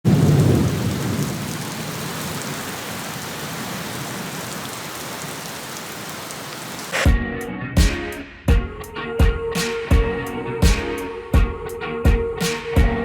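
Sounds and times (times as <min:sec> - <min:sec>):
steady rain: 0:00.0 - 0:07.1
low thunder rumble: 0:00.1 - 0:02.1.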